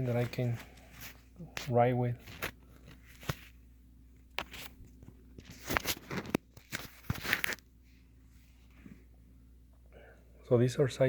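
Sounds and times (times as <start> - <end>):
gloves and packaging crinkling: 0.0 - 7.7.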